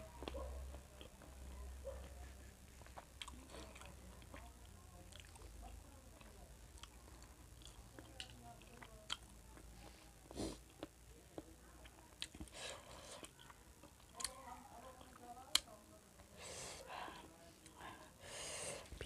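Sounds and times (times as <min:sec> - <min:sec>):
chewing with wet mouth clicks: 0:00.2 - 0:01.4, 0:02.8 - 0:09.7, 0:10.7 - 0:15.8.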